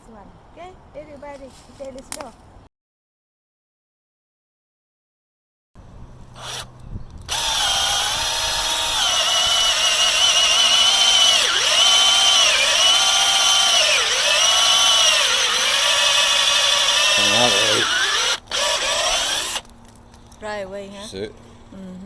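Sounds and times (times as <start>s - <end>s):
power drill boring into wood: 6.4s - 6.7s, 7.3s - 19.7s.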